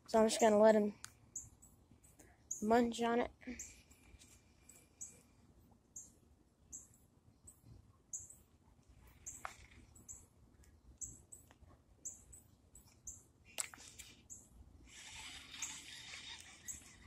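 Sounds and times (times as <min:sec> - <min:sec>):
faint high-pitched bird chirps: 0:01.4 - 0:03.9, 0:04.9 - 0:05.3, 0:06.7 - 0:08.5, 0:09.1 - 0:10.3, 0:13.9 - 0:17.0.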